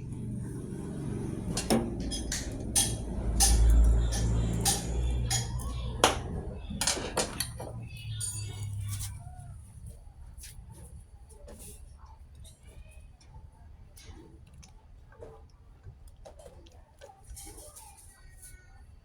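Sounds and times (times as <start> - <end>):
steady low hum: 0.0 - 10.2
metal tools clinking: 1.1 - 9.2.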